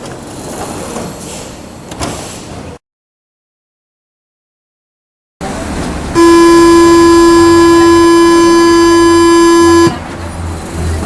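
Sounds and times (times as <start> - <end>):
train door warning buzzer: 6.1 - 10.0.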